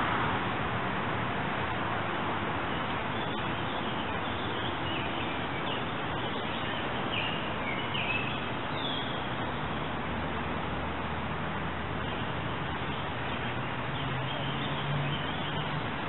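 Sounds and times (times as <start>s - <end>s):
small birds chirping: 3.1s - 9.6s.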